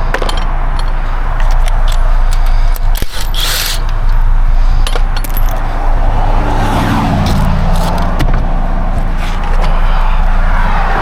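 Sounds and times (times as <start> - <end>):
metallic clinks of tools: 2.4 - 3.9.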